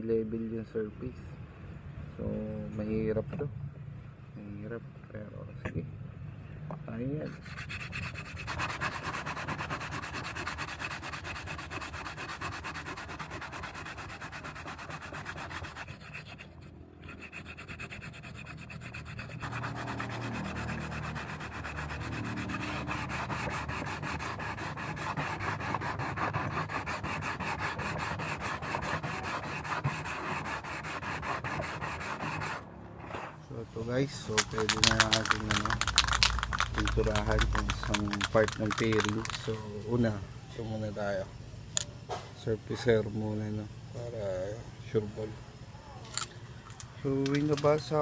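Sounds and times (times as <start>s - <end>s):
sandpaper scratching: 7.3s - 33.3s, 34.1s - 39.8s.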